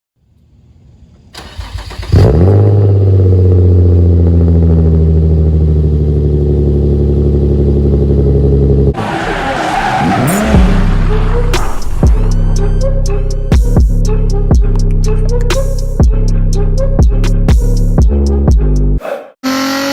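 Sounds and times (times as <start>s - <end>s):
car engine cold start and idle: 1.3s - 8.9s
engine cranking: 1.4s - 2.5s.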